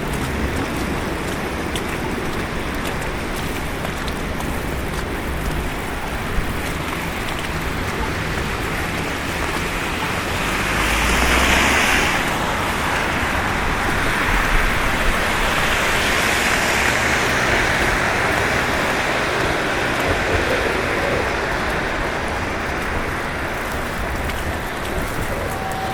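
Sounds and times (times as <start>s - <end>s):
tyres hissing through slush: 0.1s - 25.9s
vehicle passing: 8.1s - 24.0s.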